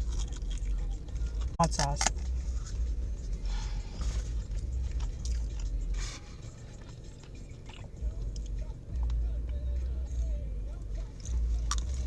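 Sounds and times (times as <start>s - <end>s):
person chewing crunchy food: 0.0s - 9.4s, 10.1s - 12.0s
low rumble: 0.0s - 12.0s.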